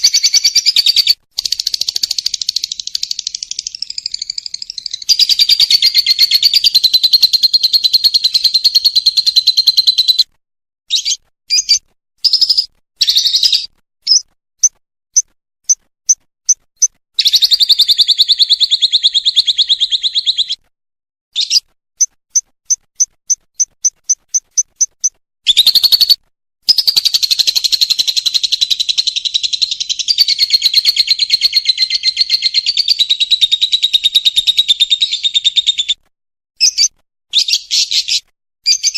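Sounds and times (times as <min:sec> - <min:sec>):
lovebird rapid trills: 0:00.0 - 0:10.1
sharp bird chirps: 0:00.0 - 0:10.3, 0:10.9 - 0:20.7, 0:21.3 - 0:36.0, 0:36.6 - 0:38.9.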